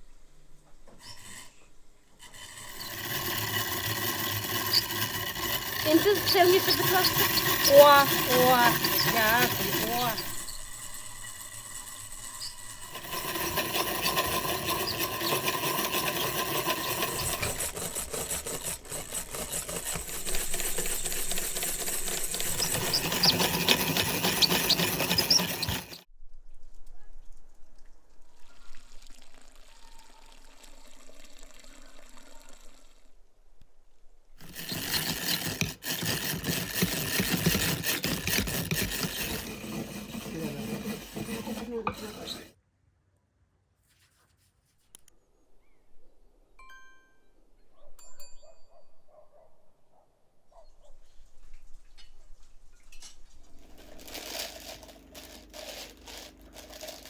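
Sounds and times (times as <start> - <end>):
whisk rattling in a bowl: 2.2 - 26.1, 34.4 - 42.6, 53.6 - 57.0.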